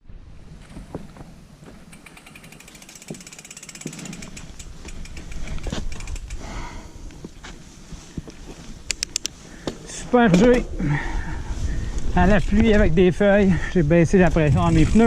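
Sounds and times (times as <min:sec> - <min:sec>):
bicycle freehub ticking: 0:01.9 - 0:06.7.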